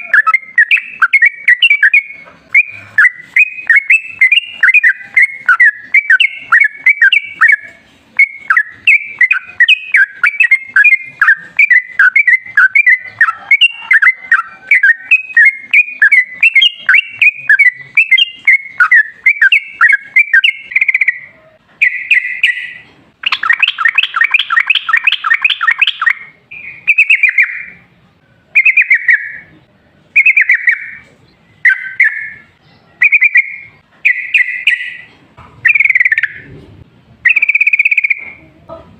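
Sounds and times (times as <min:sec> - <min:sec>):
bird singing bubbling chirps: 0:00.0 - 0:27.8, 0:28.6 - 0:36.5.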